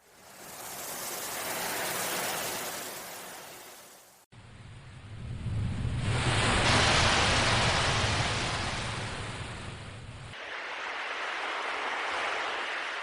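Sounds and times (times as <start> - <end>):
surf hiss: 0.0 - 4.6, 5.5 - 13.0
low rumble: 4.4 - 10.4
sea waves breaking: 5.6 - 13.0.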